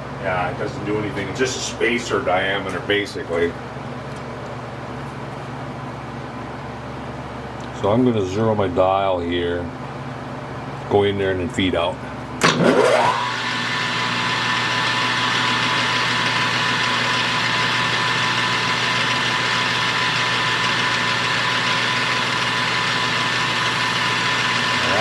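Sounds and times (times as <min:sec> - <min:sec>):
metal lathe humming and whining: 0:12.5 - 0:25.0.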